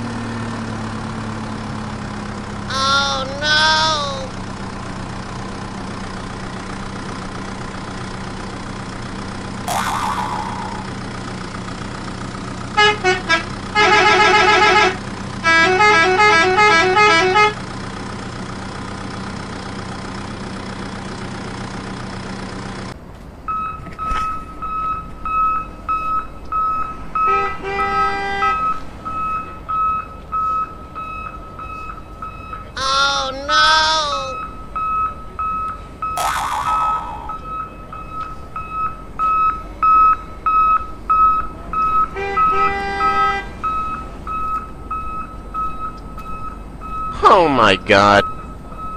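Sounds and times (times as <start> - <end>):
steady engine-like hum: 0.0 - 48.9
horn tooting rapidly: 2.7 - 4.4, 12.8 - 17.6, 32.8 - 34.4, 42.2 - 43.5
pulsing electronic beeps: 9.7 - 10.9, 34.3 - 41.9.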